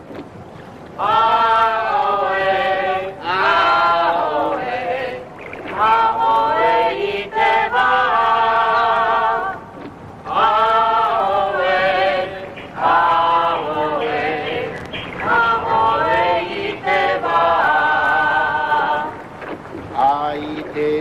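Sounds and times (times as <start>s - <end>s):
group of voices chanting: 10.3s - 19.1s.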